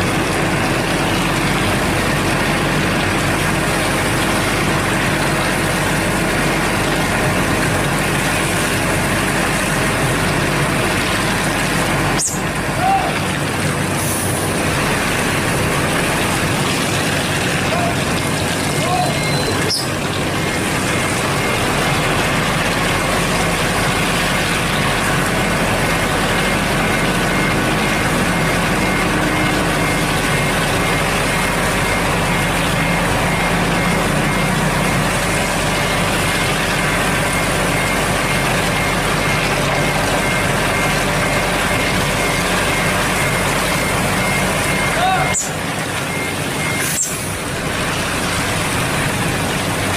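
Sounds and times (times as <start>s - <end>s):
heavy diesel truck engine rumbling: 0.0s - 49.9s
rapid high beeping: 26.4s - 47.3s.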